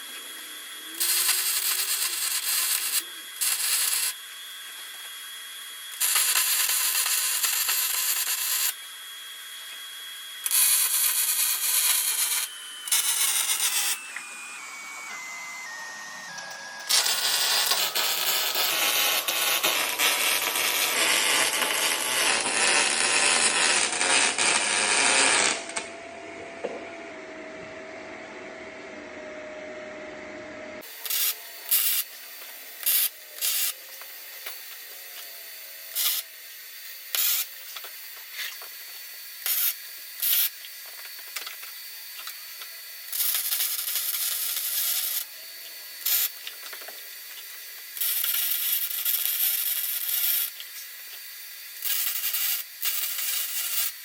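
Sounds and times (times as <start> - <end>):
short hissing bursts: 0.0 - 4.3, 30.8 - 35.0, 35.9 - 40.8, 47.2 - 54.0
abrasive grinding on metal: 10.8 - 25.6.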